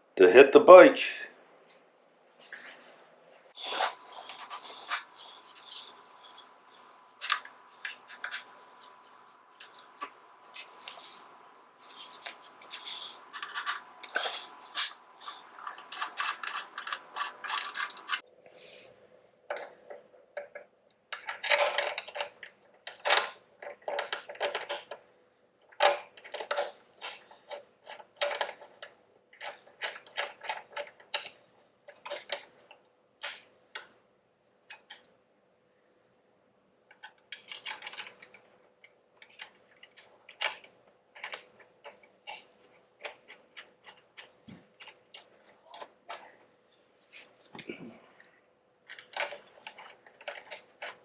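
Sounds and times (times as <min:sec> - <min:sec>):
metal tools clinking and scraping: 0:03.6 - 0:18.2.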